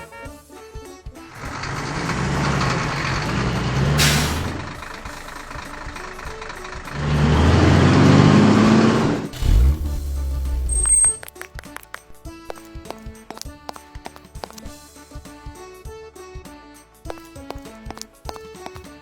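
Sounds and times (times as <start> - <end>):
truck diesel engine revving: 1.3 - 11.2
air brakes hissing: 1.4 - 11.2.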